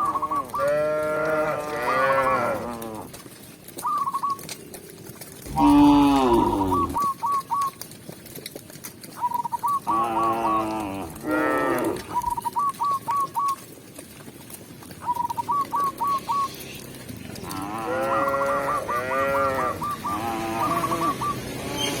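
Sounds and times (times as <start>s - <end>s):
cows mooing: 0.5s - 3.2s, 5.5s - 7.0s, 9.9s - 12.2s, 17.4s - 22.0s.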